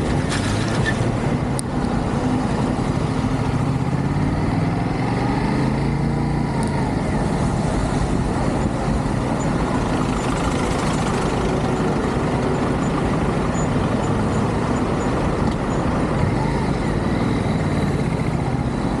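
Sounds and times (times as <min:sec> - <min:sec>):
motorcycle engine running: 0:01.8 - 0:19.0
wind rush on microphone: 0:06.4 - 0:19.0.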